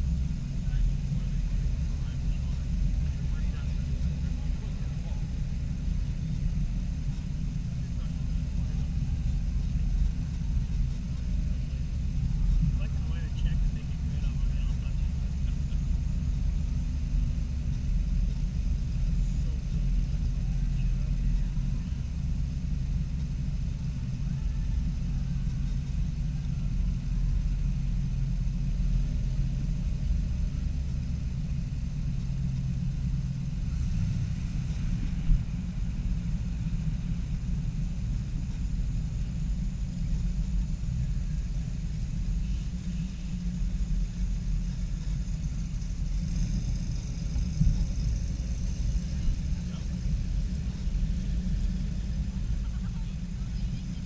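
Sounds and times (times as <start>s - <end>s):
car engines rumbling: 0.0s - 54.0s.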